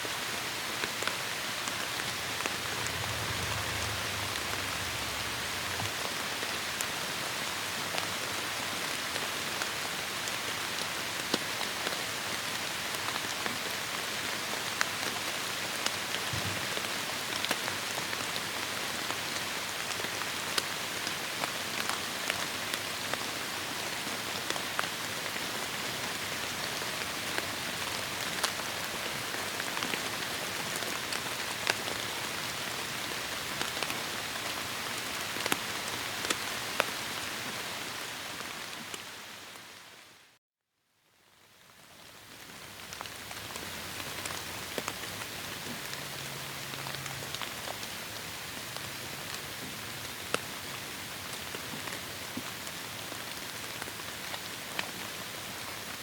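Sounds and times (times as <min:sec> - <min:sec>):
heavy rain hissing: 0:00.1 - 0:08.0.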